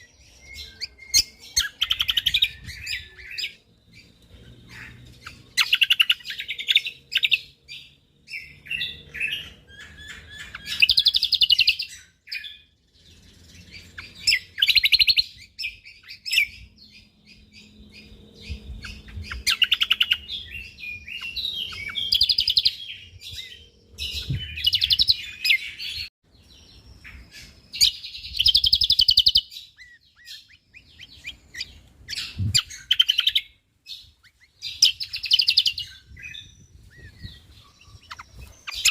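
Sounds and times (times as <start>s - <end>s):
bird chattering trills: 36.9s - 38.9s.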